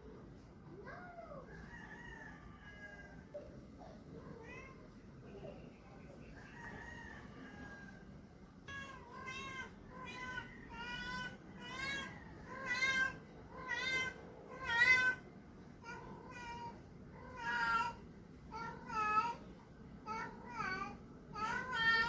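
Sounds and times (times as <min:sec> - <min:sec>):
cat meowing: 0:08.7 - 0:15.2, 0:15.8 - 0:19.4.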